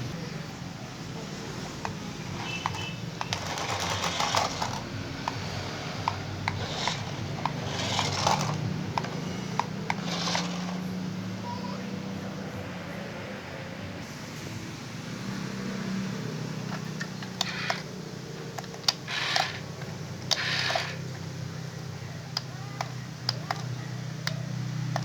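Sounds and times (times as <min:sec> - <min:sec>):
toy electric motor whirring: 0:01.6 - 0:11.0, 0:16.7 - 0:25.0
plastic clicks and rattling: 0:01.7 - 0:10.8, 0:16.7 - 0:21.4, 0:22.3 - 0:25.0.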